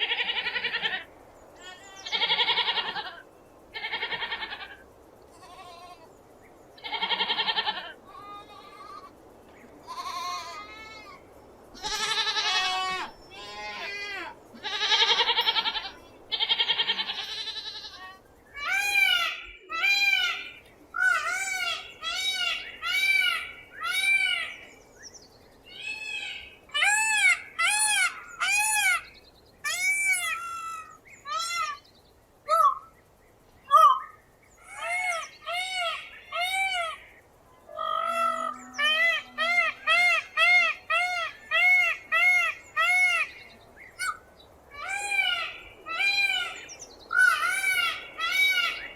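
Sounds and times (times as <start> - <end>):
peacock calling: 0.0 - 6.1, 9.8 - 24.7, 25.7 - 31.8, 32.4 - 33.0, 33.6 - 48.9
goat bleating: 5.3 - 6.1, 6.8 - 9.1, 9.8 - 11.2, 11.8 - 18.2.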